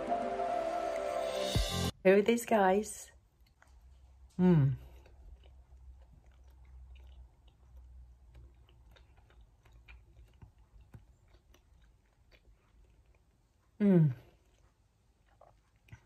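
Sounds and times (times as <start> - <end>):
faint chewing: 3.2 - 16.0.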